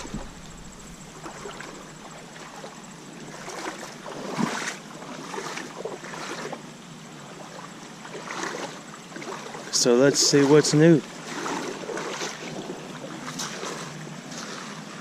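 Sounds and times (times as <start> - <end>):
creek water running: 0.0 - 15.0
water splashes: 0.0 - 15.0.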